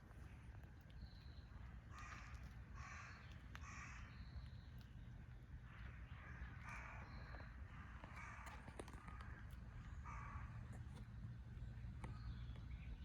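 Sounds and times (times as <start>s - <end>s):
crow cawing: 1.9s - 4.1s, 10.1s - 10.6s.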